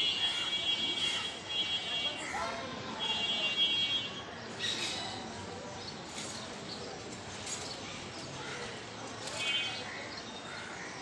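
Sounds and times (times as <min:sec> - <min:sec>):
small birds chirping: 0:04.4 - 0:11.0.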